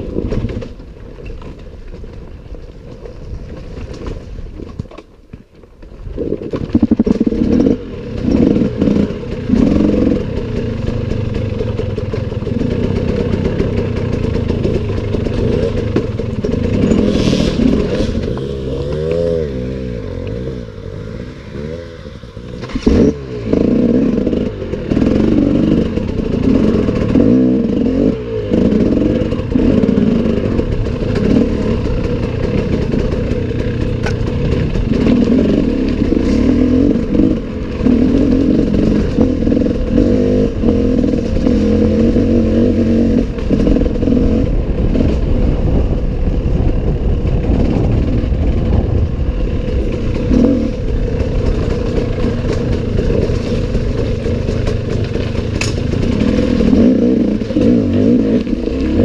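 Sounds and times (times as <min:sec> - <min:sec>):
wind rumble on microphone: 0:22.3 - 0:59.0.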